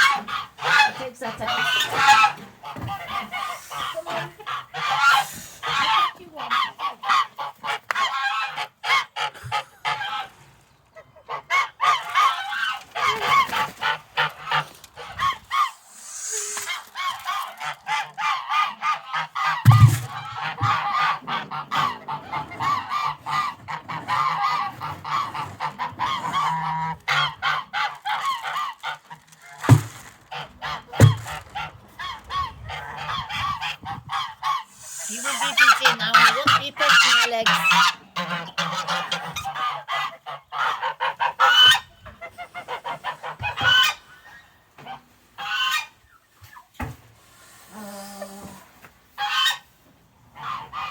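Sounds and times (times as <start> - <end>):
geese honking and cackling: 0.0 - 46.7, 47.5 - 50.9
dull knocks: 19.6 - 20.8, 31.0 - 31.4.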